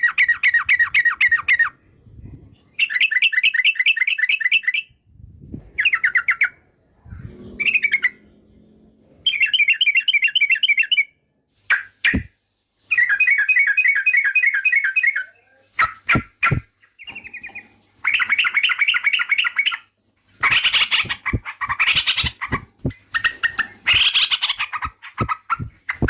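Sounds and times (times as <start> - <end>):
bird chattering song: 0.0 - 1.8, 2.6 - 5.0, 5.8 - 12.3, 12.9 - 26.0.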